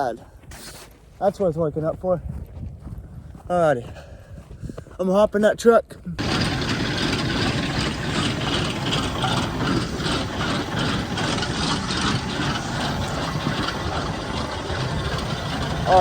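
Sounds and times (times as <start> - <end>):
truck engine running: 6.2 - 16.0.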